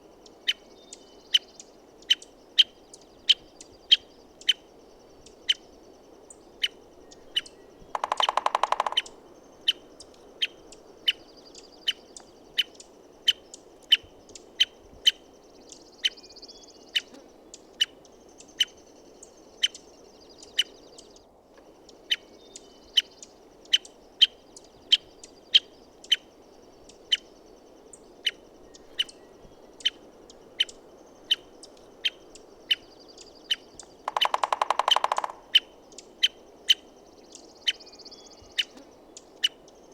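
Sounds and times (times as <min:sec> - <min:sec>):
woodpecker call notes: 0:05.3 - 0:39.9
woodpecker drumming on wood: 0:07.9 - 0:09.2, 0:34.0 - 0:35.7.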